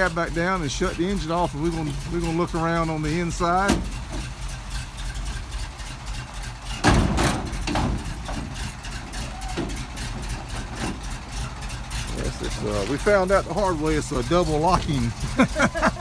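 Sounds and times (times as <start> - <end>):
truck engine idling: 0.0 - 16.0
heavy thud of truck cab: 3.6 - 4.4, 6.7 - 12.6.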